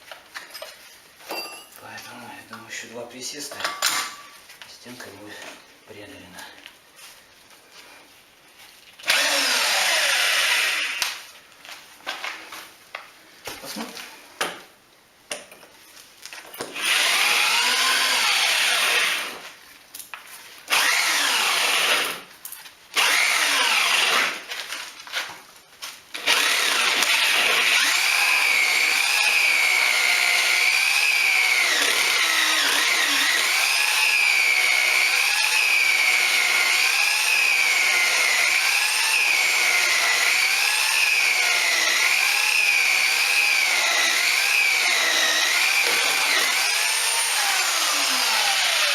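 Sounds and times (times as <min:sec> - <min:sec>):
electric drill boring through wall: 0:09.0 - 0:11.2, 0:16.6 - 0:19.4, 0:20.7 - 0:22.3, 0:23.0 - 0:24.5, 0:26.1 - 0:48.9.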